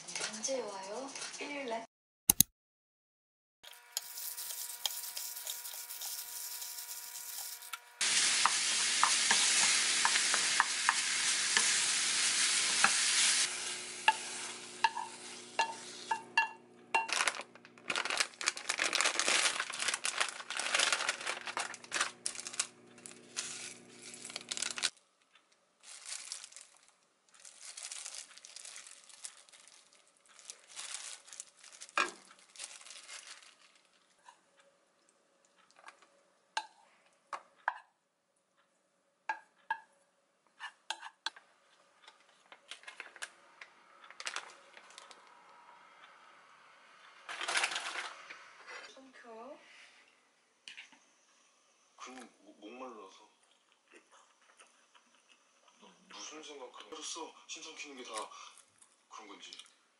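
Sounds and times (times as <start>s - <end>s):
utensil scraping and clicking: 3.7s - 7.8s
tofu sizzling in a pan: 3.7s - 16.2s
wooden spoon stirring in a bowl: 3.9s - 17.1s.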